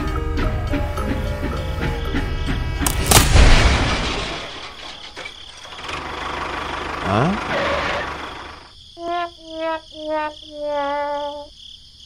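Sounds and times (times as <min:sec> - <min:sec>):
crash bang with deep boom: 0:03.0 - 0:05.0.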